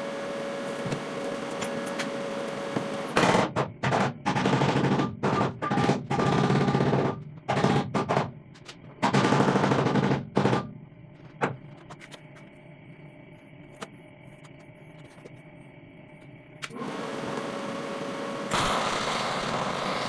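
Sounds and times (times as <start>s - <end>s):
faint hum: 10.4s - 20.0s
crackling weld bursts: 18.5s - 20.0s.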